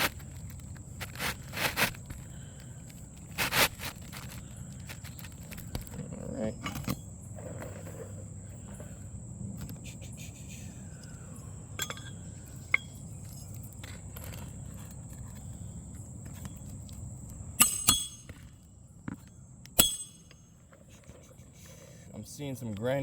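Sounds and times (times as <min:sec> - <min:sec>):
hatchet striking nails: 0:17.6 - 0:18.4, 0:19.8 - 0:20.4.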